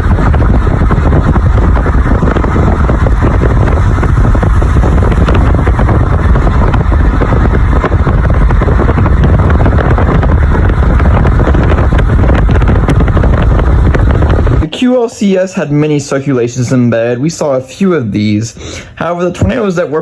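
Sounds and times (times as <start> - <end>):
wind buffeting microphone: 0.0 - 14.7.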